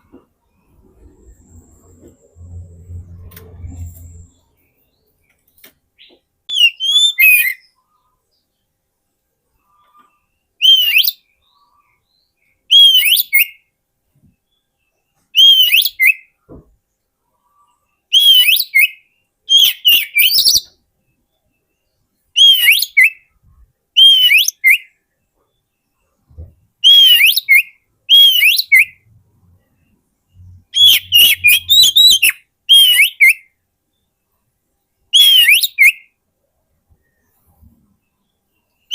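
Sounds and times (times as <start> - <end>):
bird singing whistled phrases: 6.5 - 7.7, 10.6 - 11.3, 12.7 - 13.6, 15.4 - 16.3, 18.1 - 20.8, 22.4 - 23.3, 24.0 - 24.9, 26.8 - 29.0, 30.7 - 33.5, 35.1 - 36.1.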